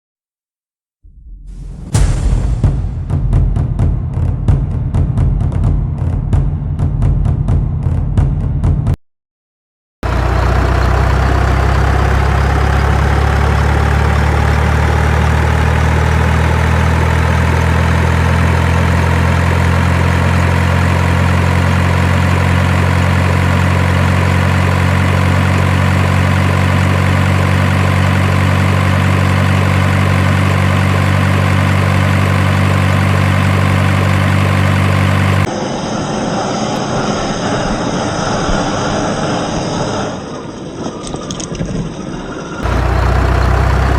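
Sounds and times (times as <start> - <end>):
truck engine idling: 10.0 - 35.5, 42.2 - 43.9
quieter engine sound: 10.1 - 43.9.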